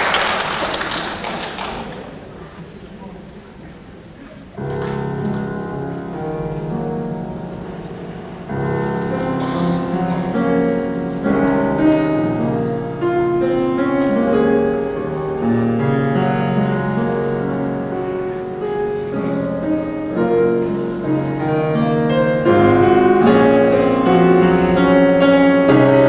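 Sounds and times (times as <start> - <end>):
piano chords: 4.6 - 26.0.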